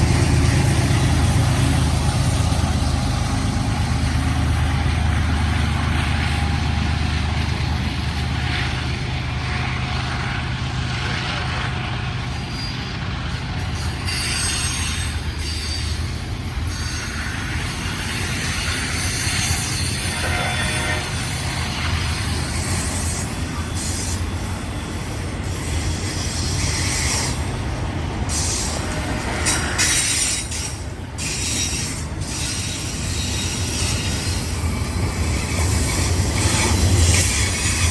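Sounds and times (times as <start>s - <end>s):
locomotive engines droning: 0.0s - 37.9s
train noise: 0.0s - 37.9s
wheel squeal: 12.3s - 13.0s, 13.6s - 21.4s, 28.3s - 37.9s.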